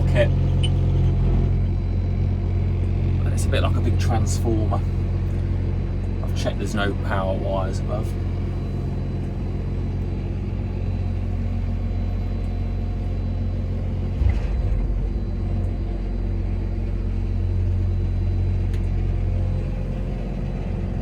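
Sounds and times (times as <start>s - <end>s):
diesel engine running: 0.0s - 21.0s
hydraulic hopper unfolding: 13.8s - 17.1s
brief machine thump: 14.2s - 15.2s.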